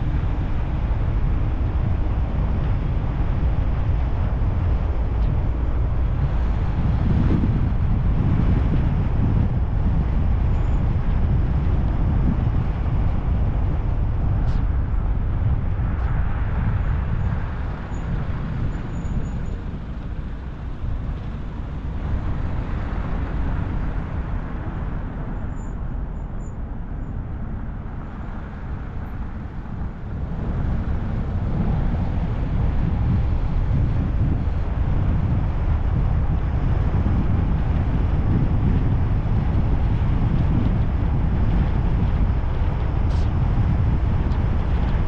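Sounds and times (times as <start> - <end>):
car engine and tyre rumble: 0.0 - 45.0.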